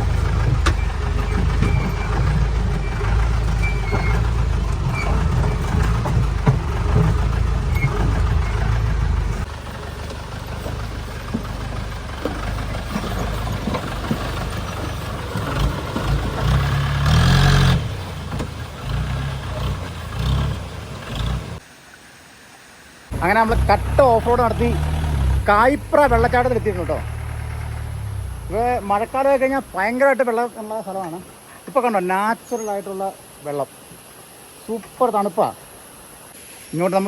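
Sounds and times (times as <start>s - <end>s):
jeep engine rumbling: 0.0s - 21.6s, 23.1s - 31.4s
knocks and rattles: 0.0s - 21.6s.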